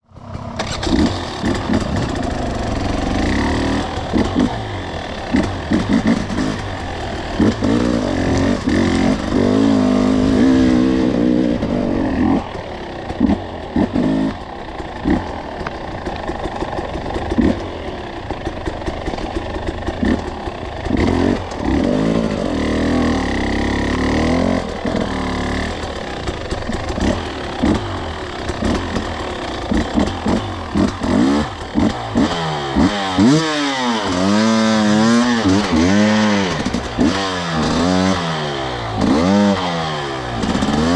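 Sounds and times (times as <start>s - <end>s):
two-stroke dirt bike engine revving: 0.0s - 40.9s.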